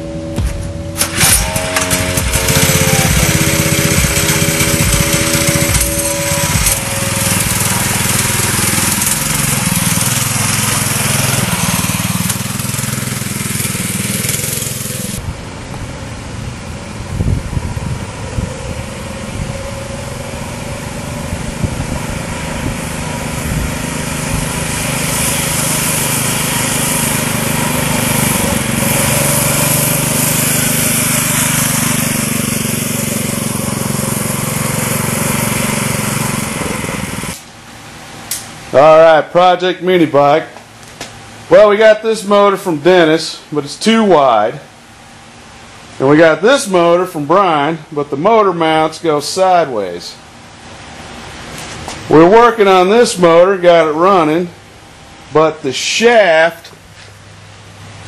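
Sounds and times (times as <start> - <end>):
small motorbike engine revving: 0.0 - 15.3, 16.6 - 37.5.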